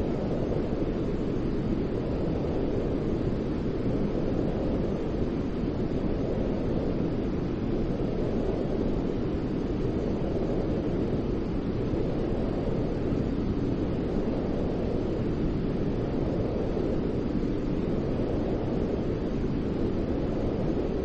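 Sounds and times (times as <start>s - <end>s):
deep white noise hiss: 0.0s - 21.0s.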